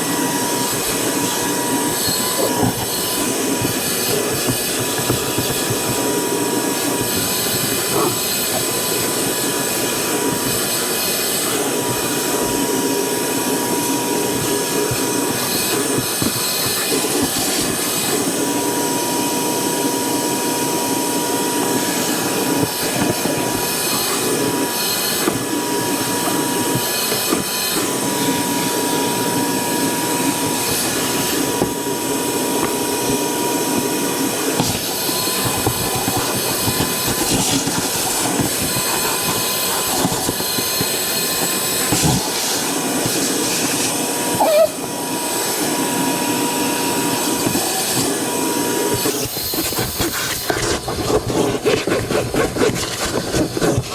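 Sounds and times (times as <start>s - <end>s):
cleaning machine motor whining: 0.0s - 52.5s.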